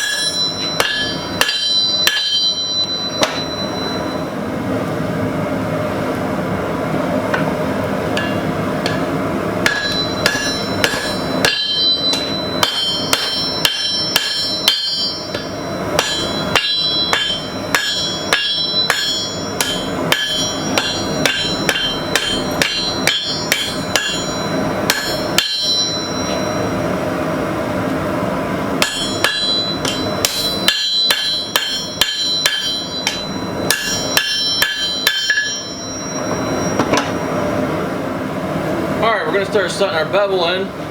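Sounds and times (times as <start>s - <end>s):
hammer striking steel on anvil: 0.0s - 4.3s, 8.1s - 26.8s, 28.7s - 37.4s
forge noise: 0.0s - 40.7s.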